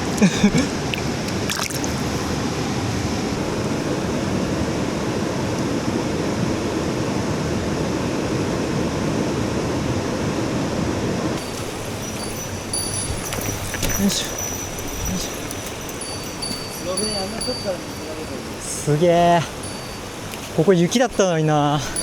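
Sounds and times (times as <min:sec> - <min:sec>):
stream running over rocks: 0:00.0 - 0:02.6, 0:11.4 - 0:22.0.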